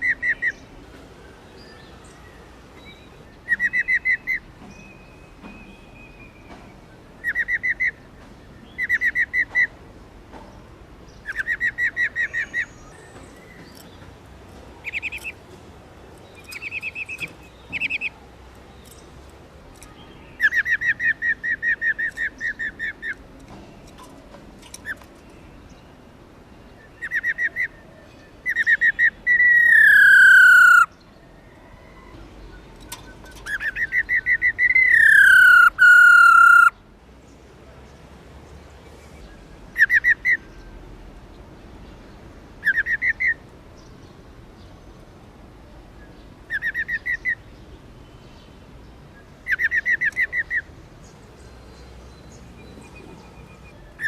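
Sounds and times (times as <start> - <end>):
bird rattling trills: 16.4 - 18.1, 23.8 - 25.4, 32.8 - 36.7.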